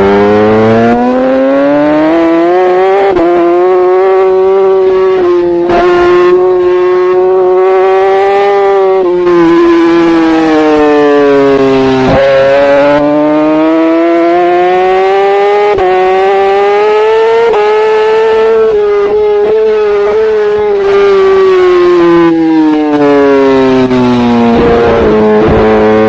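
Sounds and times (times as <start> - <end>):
motorbike engine at high revs: 0.0 - 26.0.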